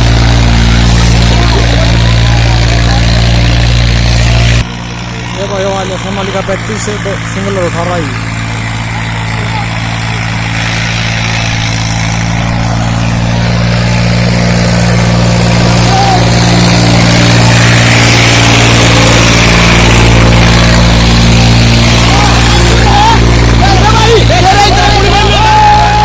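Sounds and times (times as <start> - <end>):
tractor diesel engine droning: 0.0 - 26.0.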